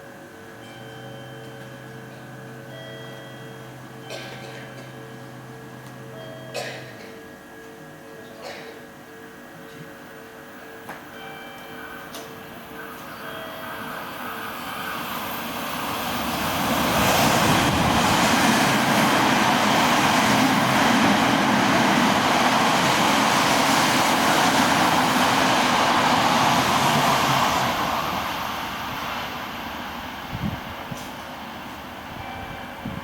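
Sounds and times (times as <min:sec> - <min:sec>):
train wheels on rails: 0:10.9 - 0:33.0
train passing at speed: 0:11.1 - 0:33.0.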